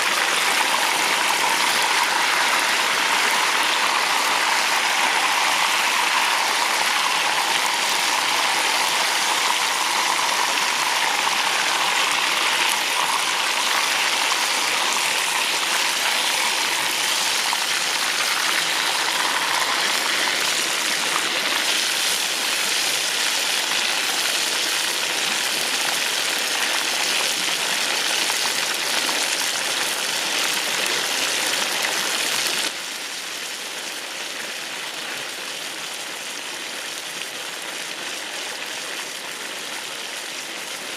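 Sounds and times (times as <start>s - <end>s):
hot oil sizzling: 0.0s - 32.7s.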